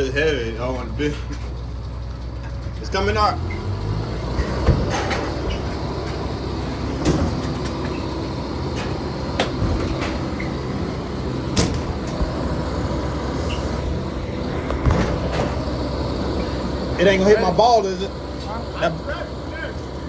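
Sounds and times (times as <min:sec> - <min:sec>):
low engine rumble: 0:00.0 - 0:20.0
sharp knocks: 0:09.4 - 0:10.4, 0:11.6 - 0:12.4.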